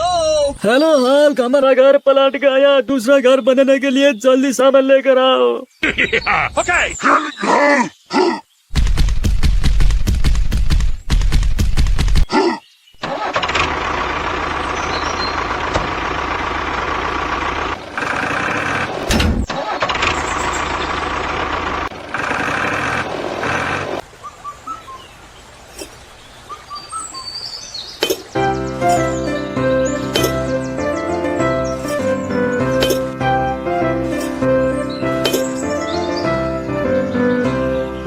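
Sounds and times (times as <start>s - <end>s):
birds chirping: 0.0s - 9.6s, 14.4s - 16.7s, 17.4s - 38.0s
vehicle engine running: 13.4s - 19.2s, 19.9s - 24.0s.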